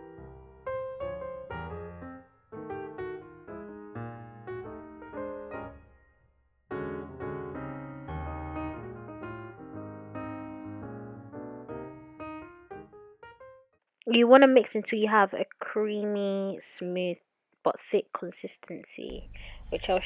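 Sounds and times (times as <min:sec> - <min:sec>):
slow piano music: 0:00.0 - 0:13.8.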